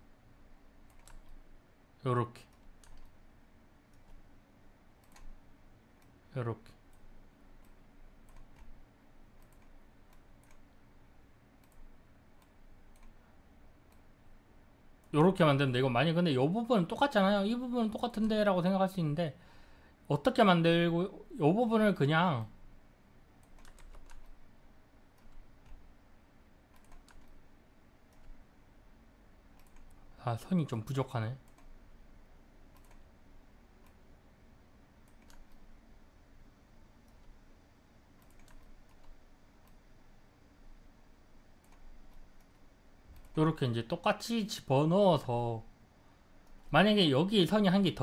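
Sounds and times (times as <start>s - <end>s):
faint computer mouse clicks: 5.0s - 5.4s, 9.4s - 10.6s, 11.6s - 13.2s, 26.7s - 27.4s, 32.7s - 33.1s, 35.0s - 35.7s, 38.2s - 39.8s, 41.6s - 43.4s.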